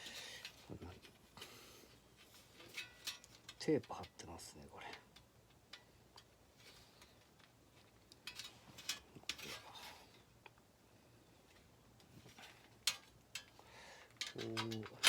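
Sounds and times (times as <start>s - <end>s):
soft rustling: 0.0s - 4.0s
metal parts clicking and clinking: 2.2s - 10.2s, 12.2s - 15.0s.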